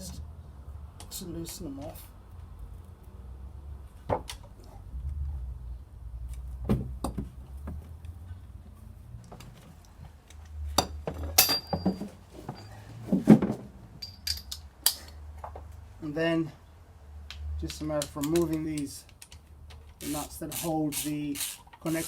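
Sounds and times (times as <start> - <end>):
metallic clinks of socket wrench: 14.0 - 15.2.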